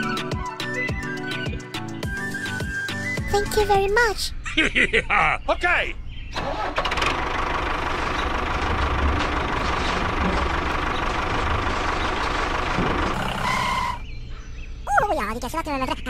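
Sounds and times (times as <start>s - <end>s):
tractor engine running: 6.3s - 14.3s.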